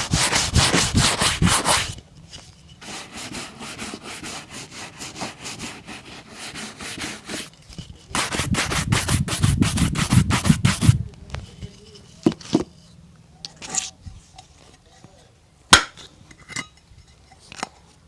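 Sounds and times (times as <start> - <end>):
rubbing strokes on leather boot: 0.0 - 2.0, 2.8 - 7.5, 8.1 - 11.0.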